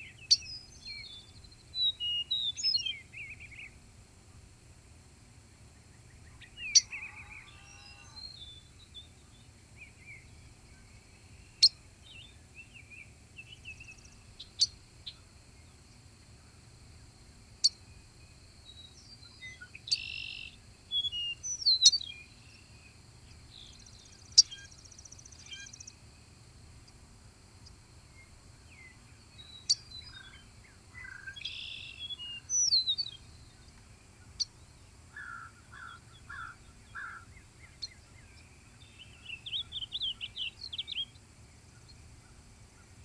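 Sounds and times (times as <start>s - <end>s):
birds chirping and warbling: 6.0s - 10.6s, 18.8s - 25.9s, 28.8s - 41.2s.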